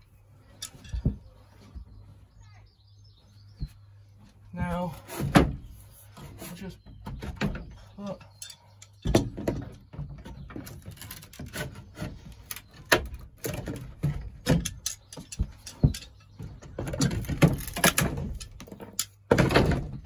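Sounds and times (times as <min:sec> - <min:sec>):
pipe fittings knocking and rattling: 0:00.6 - 0:01.4, 0:06.8 - 0:20.0.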